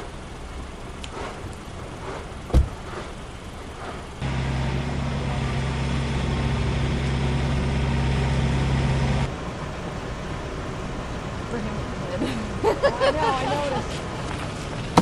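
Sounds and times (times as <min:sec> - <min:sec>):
engine idling: 0:00.0 - 0:15.0
sharp thump: 0:02.5 - 0:03.1.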